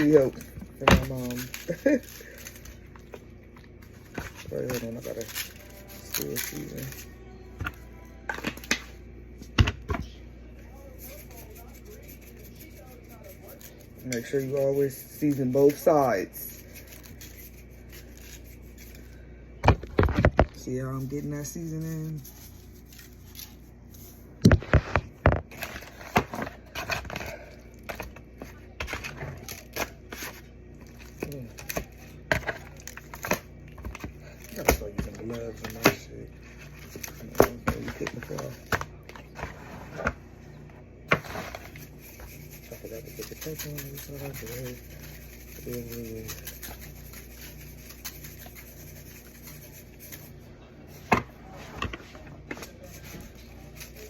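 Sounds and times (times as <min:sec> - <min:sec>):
hands rubbing raw chicken: 0:41.6 - 0:50.4.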